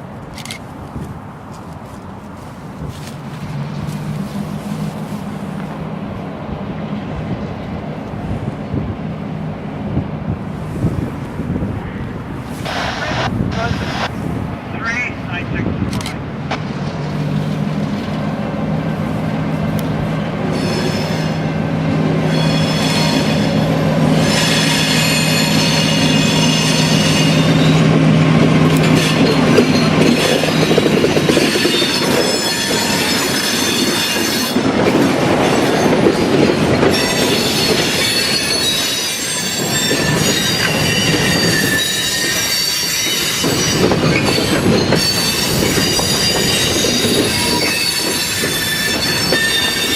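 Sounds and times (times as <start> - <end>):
diesel engine drone: 12.6 - 20.4
train wheels squealing on rails: 20.4 - 49.9.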